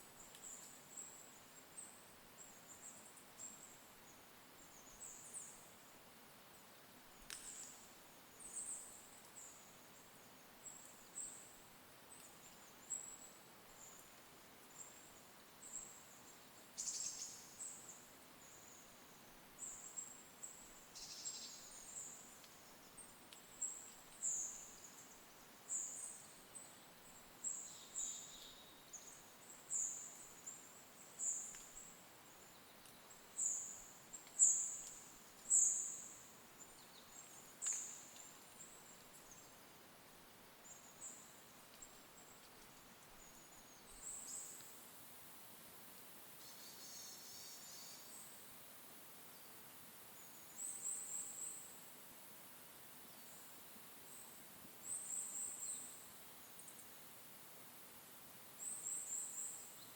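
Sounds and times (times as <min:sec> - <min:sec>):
small bird chirping: 0:16.8 - 0:18.9, 0:19.6 - 0:30.6.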